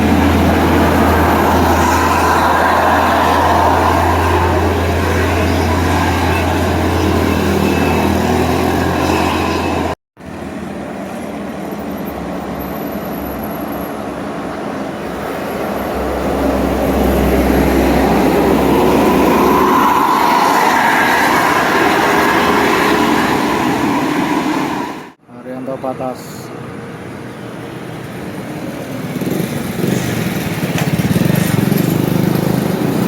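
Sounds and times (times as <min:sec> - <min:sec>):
heavy vehicles passing: 0:00.0 - 0:33.0.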